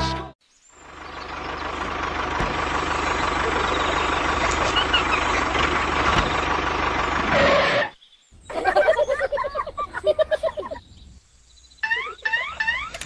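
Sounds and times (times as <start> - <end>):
large vehicle engine running: 0.8 - 8.0.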